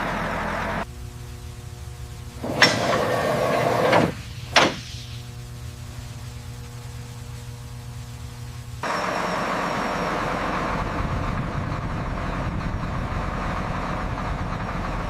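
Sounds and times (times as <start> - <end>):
steady low hum: 0.0 - 15.0
door scraping: 2.4 - 5.1
door slamming: 2.5 - 5.1.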